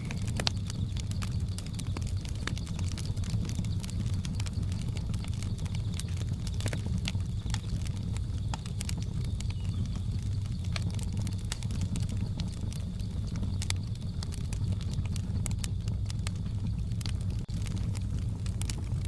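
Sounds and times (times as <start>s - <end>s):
high-pitched jungle drone: 0.0s - 0.6s
low steady rumble: 0.0s - 19.0s
wood fire crackling and popping: 0.0s - 19.0s.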